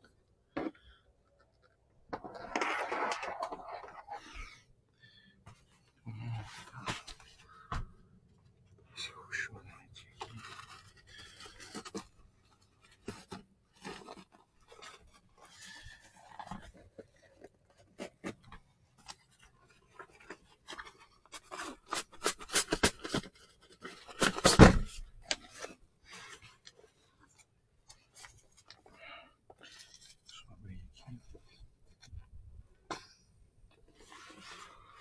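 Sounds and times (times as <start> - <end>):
rustling: 10.0 - 30.4, 33.7 - 35.0.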